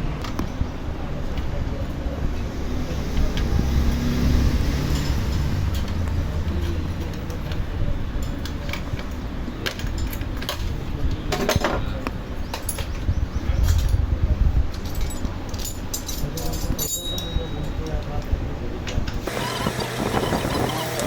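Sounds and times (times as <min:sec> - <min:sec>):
metallic clinks of tools: 0:14.7 - 0:18.2.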